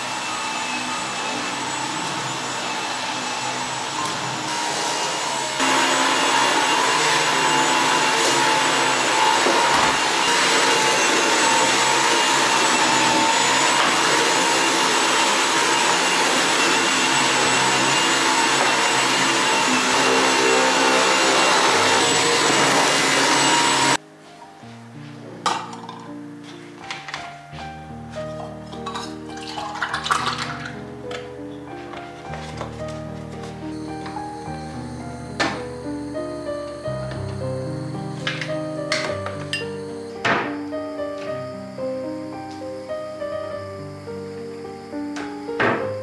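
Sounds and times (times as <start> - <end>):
vacuum cleaner running with whine: 0.0 - 24.0, 31.9 - 46.0.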